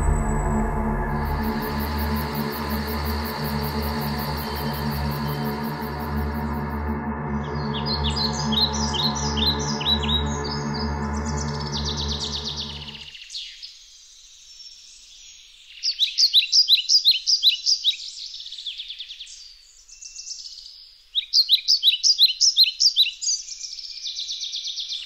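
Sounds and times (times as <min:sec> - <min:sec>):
low droning tone: 0:00.0 - 0:13.1
songbird chirping: 0:00.0 - 0:25.0.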